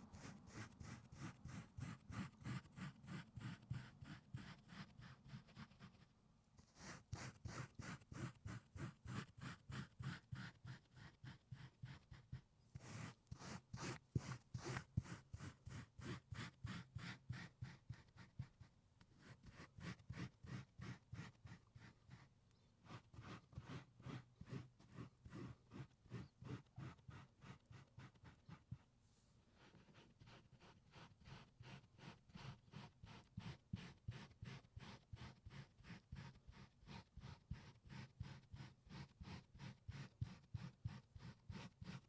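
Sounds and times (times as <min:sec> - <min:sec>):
tool scratching car carpet: 0:22.9 - 0:28.7.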